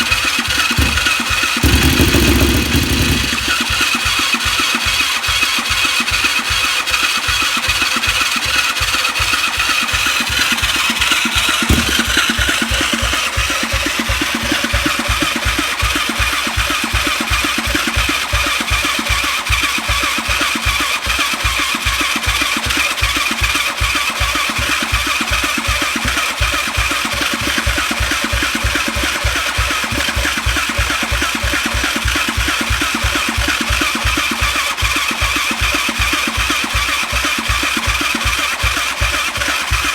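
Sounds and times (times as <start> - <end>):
engine cranking on electric starter: 0.0 - 4.9.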